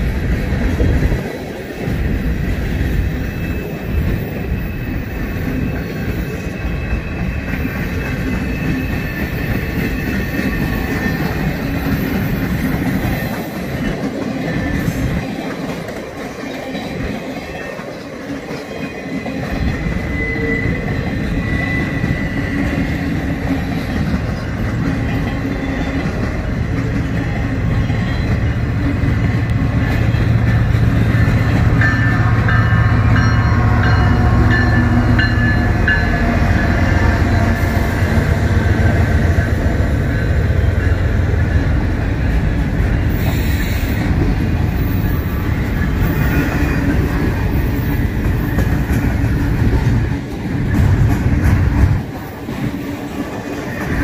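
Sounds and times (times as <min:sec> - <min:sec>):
freight train rumble: 0:00.0 - 0:54.0
train wheels clacking on rails: 0:00.0 - 0:54.0
wheel squeals: 0:03.1 - 0:13.4, 0:18.5 - 0:26.5.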